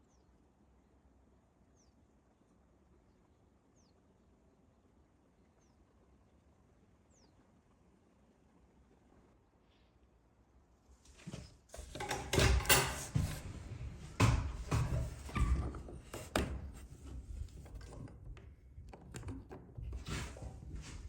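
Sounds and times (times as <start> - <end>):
knocks and thuds: 11.8 - 18.4.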